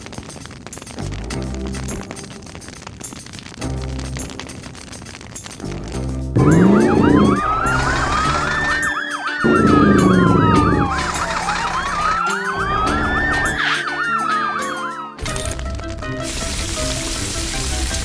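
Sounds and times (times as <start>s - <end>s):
background music: 1.0s - 4.9s, 5.6s - 18.0s
cartoon siren wailing: 6.4s - 15.4s.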